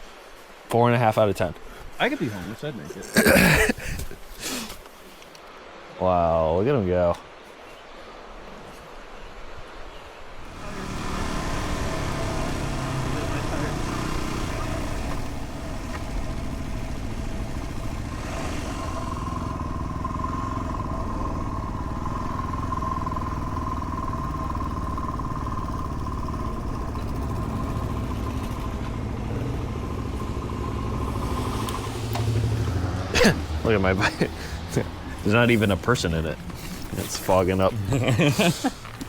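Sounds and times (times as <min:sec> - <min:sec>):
high whine: 0:10.5 - 0:35.9
motorcycle engine running: 0:10.5 - 0:37.6.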